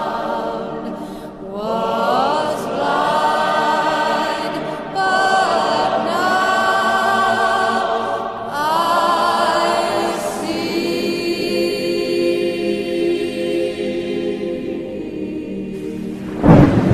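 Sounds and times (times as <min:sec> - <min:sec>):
choir singing long chords: 0:00.0 - 0:16.9.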